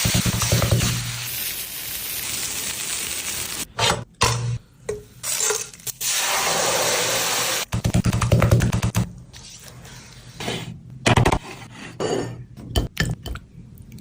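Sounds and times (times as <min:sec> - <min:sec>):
chicken sizzling in a pan: 0:00.5 - 0:03.7.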